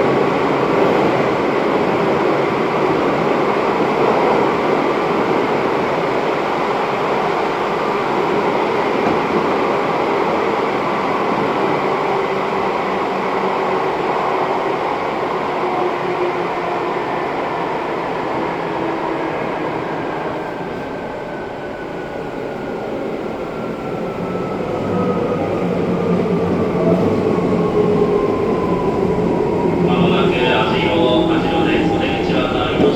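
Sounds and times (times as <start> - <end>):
train running noise: 23.6 - 32.9.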